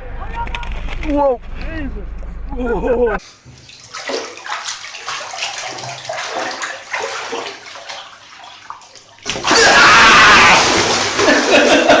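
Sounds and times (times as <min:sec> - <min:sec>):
water sloshing and splashing: 0:03.2 - 0:12.0.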